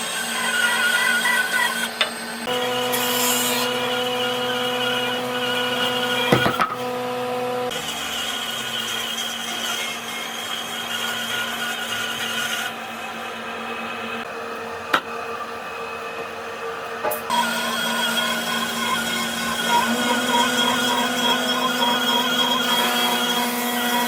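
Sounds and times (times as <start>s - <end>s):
power tool running on wood: 2.0s - 9.0s
knocks: 6.3s - 6.8s.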